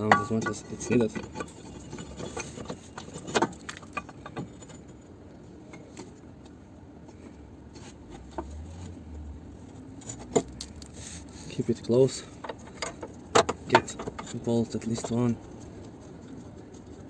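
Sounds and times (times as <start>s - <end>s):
tool handling noise: 0.0s - 5.1s, 10.0s - 15.7s.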